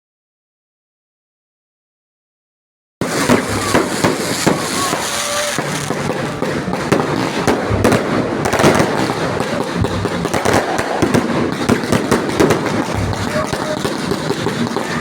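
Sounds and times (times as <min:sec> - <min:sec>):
fireworks bangs and crackles: 0:03.0 - 0:15.0
heavy firework booms: 0:03.0 - 0:15.0.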